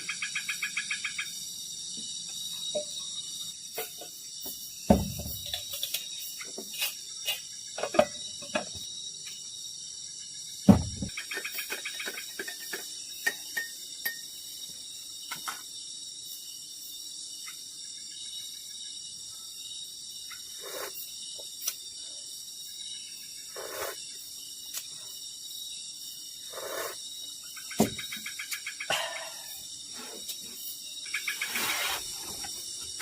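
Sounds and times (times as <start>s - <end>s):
crickets and insects chirping: 0.0s - 33.0s.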